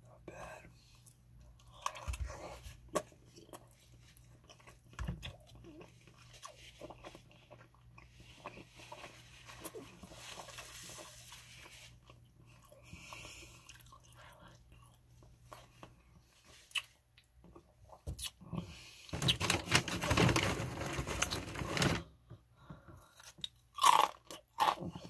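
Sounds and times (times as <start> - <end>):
close chewing food: 0.6 - 18.3.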